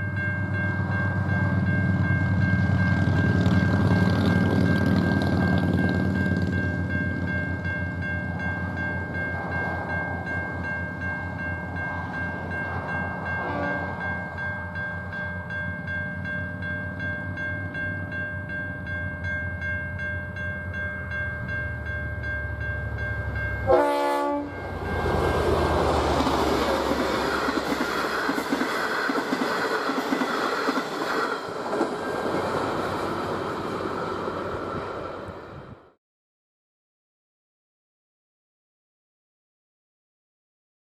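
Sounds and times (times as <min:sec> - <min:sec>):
crossing bell ringing: 0:00.0 - 0:34.5
train rumble: 0:00.0 - 0:35.9
train horn: 0:13.3 - 0:14.0, 0:23.6 - 0:24.8.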